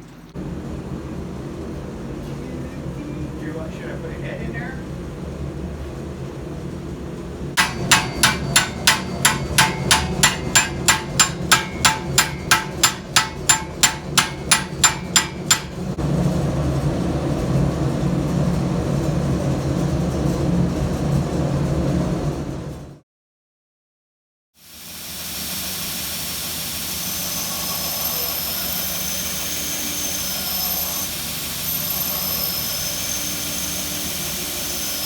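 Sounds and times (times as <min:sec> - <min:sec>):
mechanical drone: 0:06.9 - 0:21.8, 0:25.0 - 0:35.0
hammer striking metal: 0:07.6 - 0:16.0.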